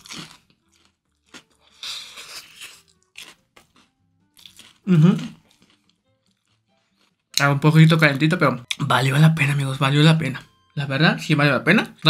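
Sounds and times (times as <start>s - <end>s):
crunchy chewing: 0.0s - 7.4s.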